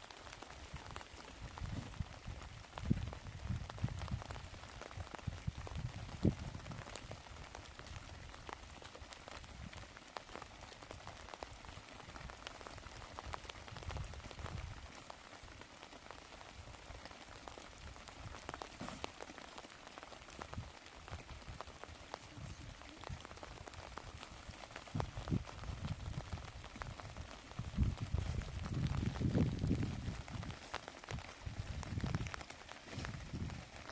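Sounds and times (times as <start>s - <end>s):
rain drops ticking: 0.0s - 33.9s.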